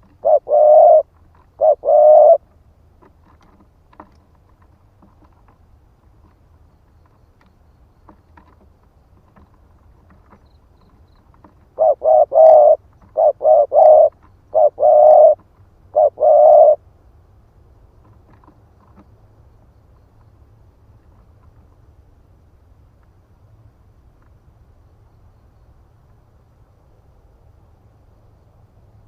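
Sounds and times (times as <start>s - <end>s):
dove cooing: 0.0s - 2.4s, 11.4s - 16.8s.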